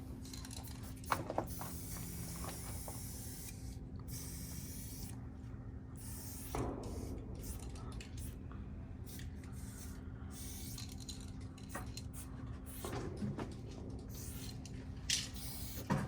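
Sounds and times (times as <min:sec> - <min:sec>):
steady low hum: 0:00.0 - 0:16.0
spray paint can hissing: 0:00.4 - 0:05.1, 0:06.0 - 0:07.7, 0:09.1 - 0:11.0, 0:14.1 - 0:14.6, 0:15.3 - 0:15.9.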